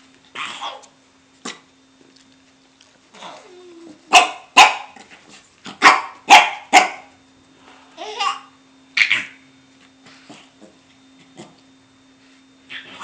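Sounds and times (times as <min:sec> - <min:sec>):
puppy barking: 0:04.1 - 0:05.0, 0:05.7 - 0:07.2, 0:09.0 - 0:09.4.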